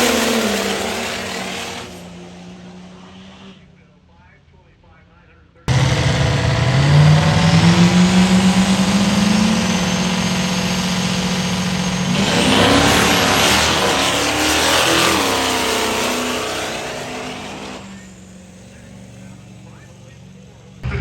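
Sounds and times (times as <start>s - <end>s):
diesel truck engine accelerating: 0.0s - 3.9s, 5.6s - 21.0s.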